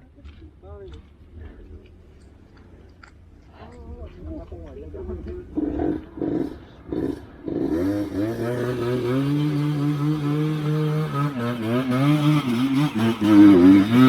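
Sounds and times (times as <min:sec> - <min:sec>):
motorcycle engine revving: 0:04.8 - 0:14.0.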